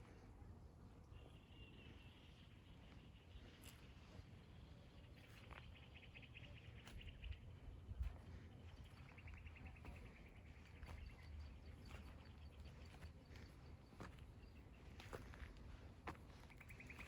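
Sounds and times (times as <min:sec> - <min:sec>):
songbird trills: 0:16.3 - 0:17.0.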